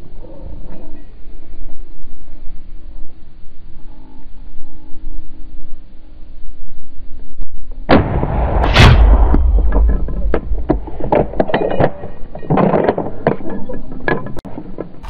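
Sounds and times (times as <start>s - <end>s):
gunshots: 7.9s - 11.6s.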